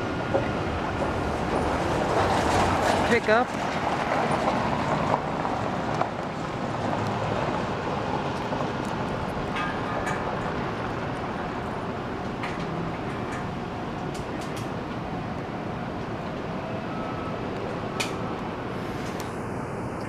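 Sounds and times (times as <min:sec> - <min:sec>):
pickup truck rolling past: 0:00.0 - 0:14.1.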